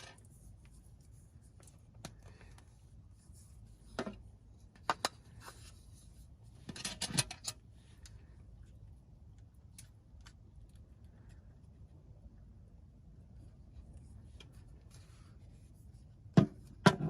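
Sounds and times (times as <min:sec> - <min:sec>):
clicks of objects being handled: 0:01.5 - 0:02.7, 0:03.9 - 0:05.8.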